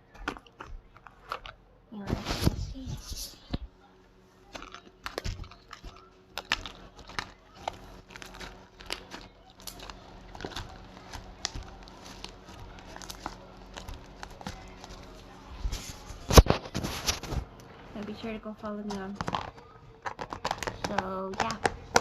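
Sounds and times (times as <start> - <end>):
slime packaging crinkling: 4.5 - 17.4, 18.9 - 22.0.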